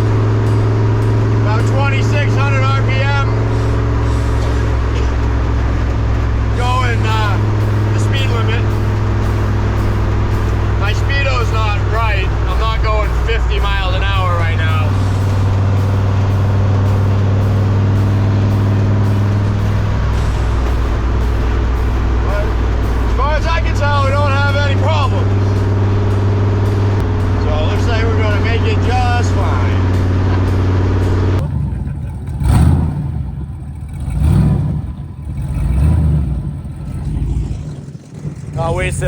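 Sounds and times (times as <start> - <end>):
truck engine droning: 0.0 - 39.0.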